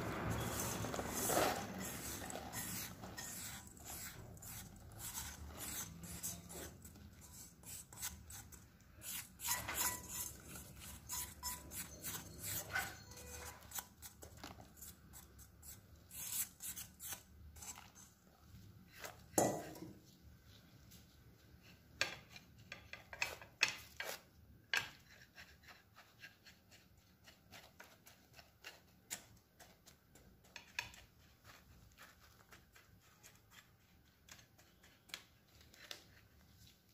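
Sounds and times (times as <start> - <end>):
utensil scraping a bowl: 0.0 - 18.4.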